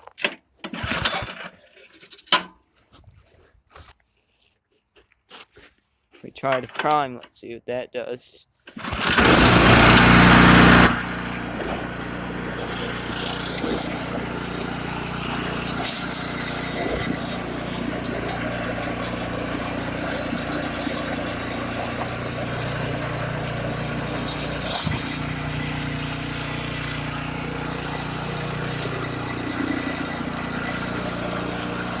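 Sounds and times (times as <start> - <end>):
snowblower engine running: 0.8 - 1.3, 8.8 - 32.0.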